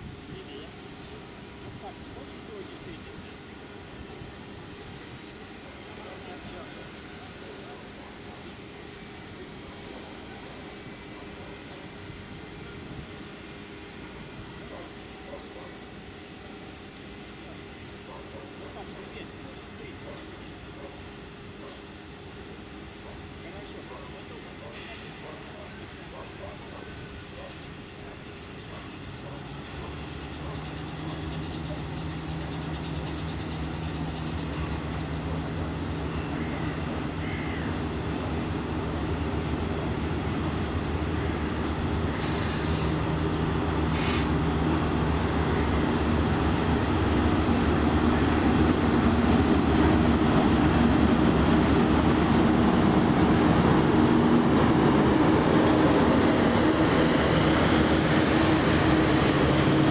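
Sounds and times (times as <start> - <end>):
electric locomotive hum: 0.0 - 59.9
wheels rolling on rail: 0.8 - 59.9
short hisses: 42.2 - 43.2, 43.9 - 44.4.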